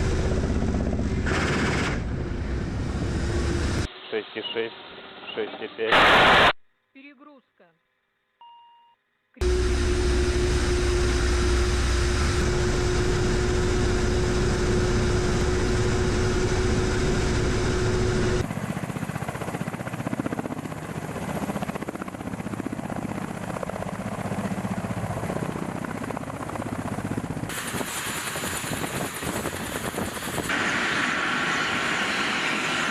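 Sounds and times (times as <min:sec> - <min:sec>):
helicopter rotor and turbine: 0:00.0 - 0:03.9, 0:09.4 - 0:32.9
steady hum tone: 0:09.4 - 0:18.4.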